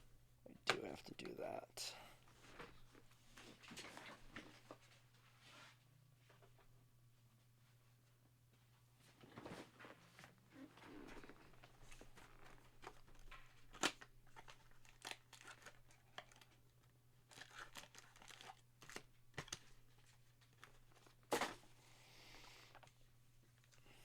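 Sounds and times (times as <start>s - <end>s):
cards and packaging rustling: 11.3s - 21.7s.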